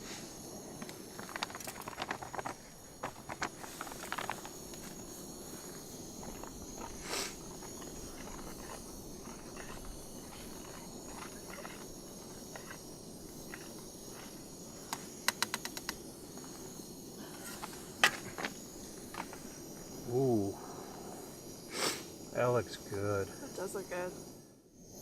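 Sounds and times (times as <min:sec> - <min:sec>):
steady low hiss: 0:00.0 - 0:25.0
small clicks and scrapes: 0:00.8 - 0:04.8, 0:06.2 - 0:16.0.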